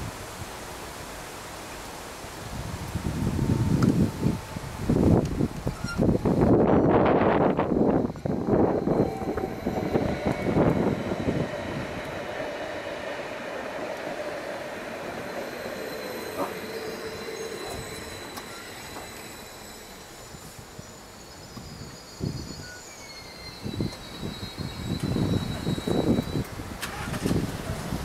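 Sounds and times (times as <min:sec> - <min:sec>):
train rumble: 0:00.0 - 0:28.0
thin high squeal: 0:05.7 - 0:06.1, 0:07.7 - 0:27.1
train wheels clattering: 0:08.1 - 0:20.6.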